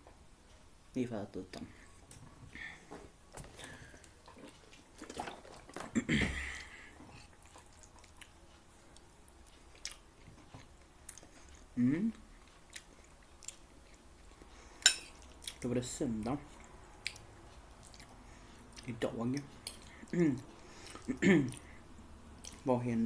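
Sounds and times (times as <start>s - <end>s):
man chewing food: 1.5s - 22.7s
short vocal sound: 11.8s - 12.2s.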